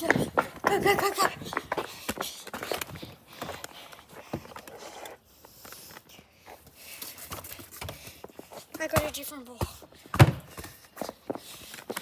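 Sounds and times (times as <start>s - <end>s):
footsteps running: 0.0s - 4.5s.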